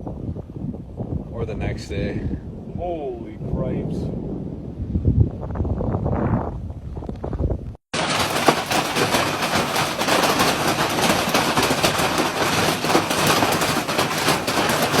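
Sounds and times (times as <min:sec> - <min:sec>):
hailstones pelting down: 0:07.9 - 0:15.0.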